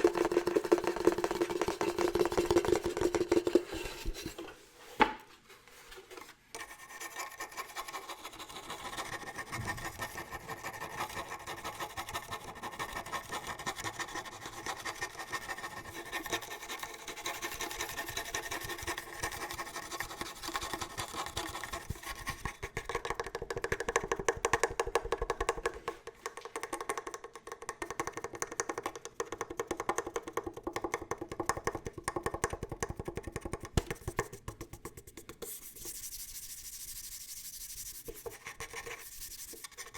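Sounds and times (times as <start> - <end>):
rapid tapping on hard object: 0.0 - 3.8, 7.5 - 37.1
scratching on hard object: 0.0 - 5.0, 5.7 - 23.9, 32.8 - 39.9.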